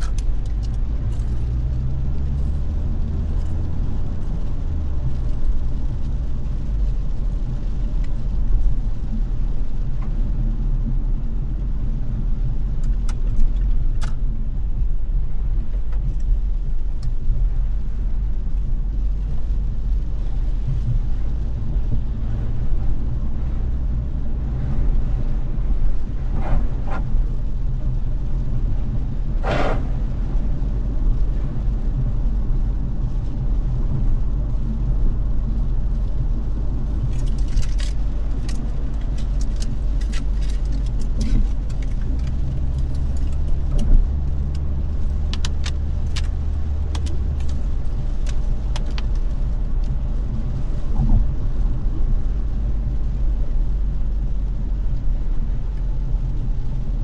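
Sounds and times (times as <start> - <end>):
car road rumble: 0.0 - 57.0.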